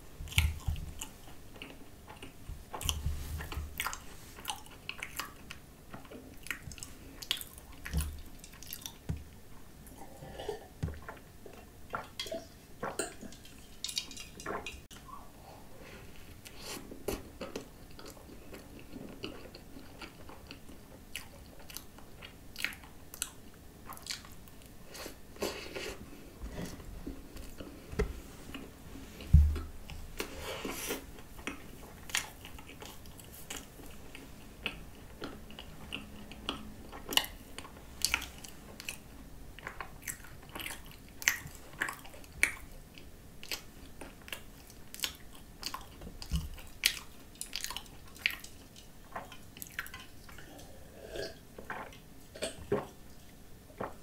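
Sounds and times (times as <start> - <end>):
chewing crunches and mouth clicks: 0.3 - 9.1, 16.4 - 24.8, 30.9 - 54.0.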